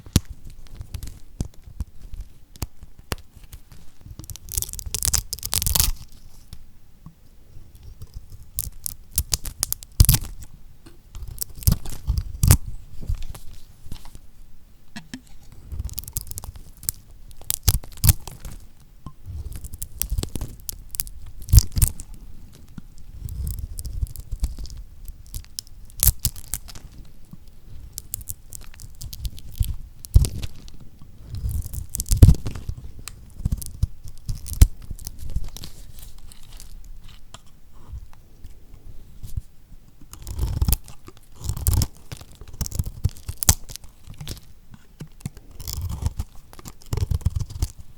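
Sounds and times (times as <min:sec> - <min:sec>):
knife crunching through soap: 0:19.3 - 0:26.9, 0:27.8 - 0:37.5, 0:40.1 - 0:47.8.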